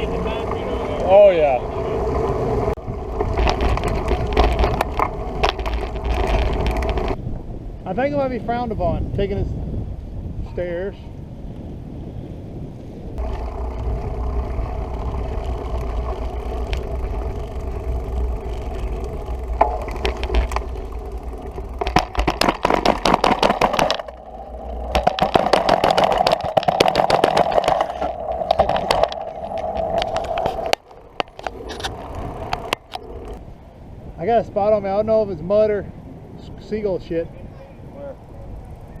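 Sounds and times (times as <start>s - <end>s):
bike rattling over rough ground: 0.0s - 7.5s, 13.2s - 33.4s
bicycle riding rumble: 0.0s - 39.0s.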